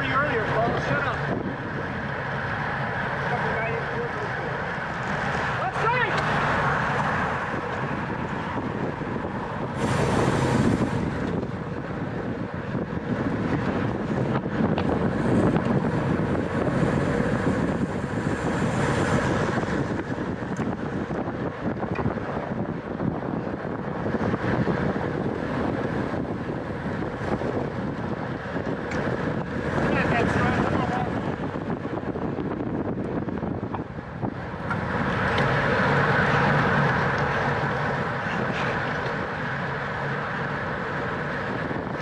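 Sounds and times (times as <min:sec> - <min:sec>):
wind rushing over microphone: 0:00.0 - 0:42.0.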